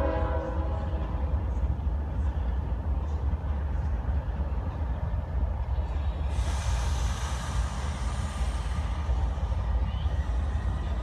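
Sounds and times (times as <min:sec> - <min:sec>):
train rumbling past: 0:00.0 - 0:11.0
hiss: 0:06.2 - 0:11.0.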